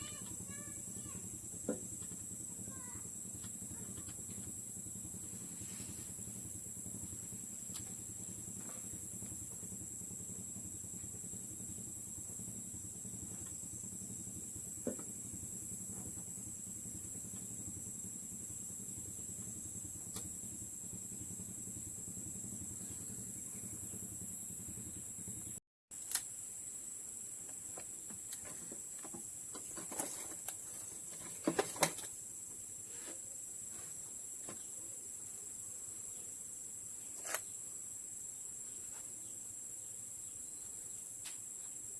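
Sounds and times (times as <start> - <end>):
low hum: 0.0 - 25.6
sharp clicks: 26.0 - 26.3.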